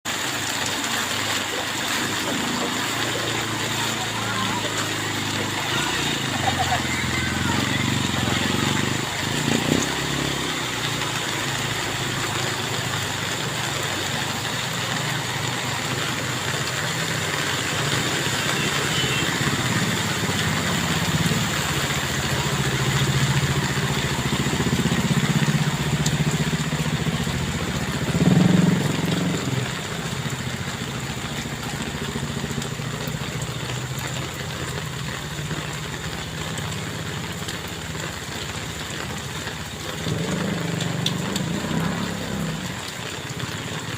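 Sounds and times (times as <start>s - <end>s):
heavy rain pouring: 0.0s - 43.9s.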